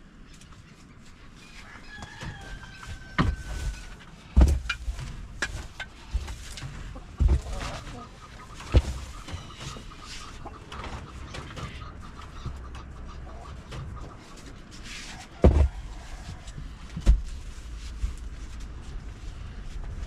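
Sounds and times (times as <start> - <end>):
chickens clucking: 0.2 - 17.0
dull thumps: 3.1 - 8.0, 15.4 - 15.9.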